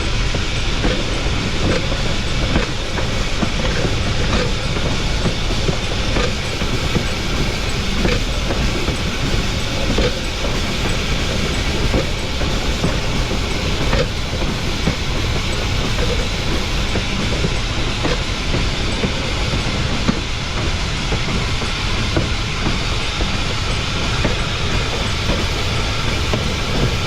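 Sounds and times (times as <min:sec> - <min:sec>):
train wheels rumbling on rails: 0:00.0 - 0:27.0
wheels clicking over rail joints: 0:02.5 - 0:20.2.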